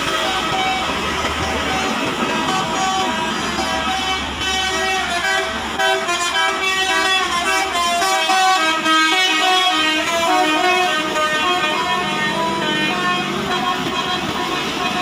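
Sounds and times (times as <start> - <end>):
musical air horn playing tune: 0.0 - 15.0.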